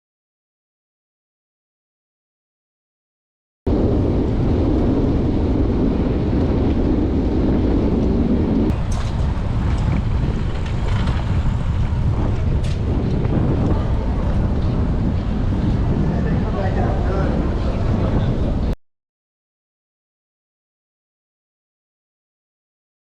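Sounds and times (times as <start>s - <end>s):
road noise: 3.7s - 18.8s
wind buffeting microphone: 3.7s - 18.8s.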